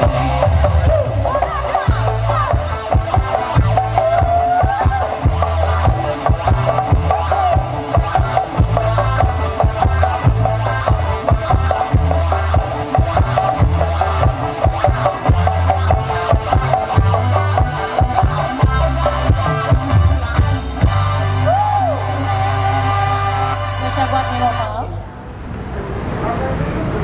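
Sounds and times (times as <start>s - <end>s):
music with fast drum beat: 0.0s - 21.3s.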